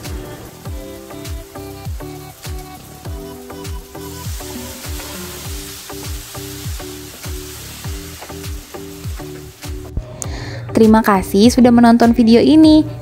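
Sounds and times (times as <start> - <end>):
tofu sizzling in a frying pan: 0.0 - 10.0
music with deep kick drums: 0.0 - 13.0.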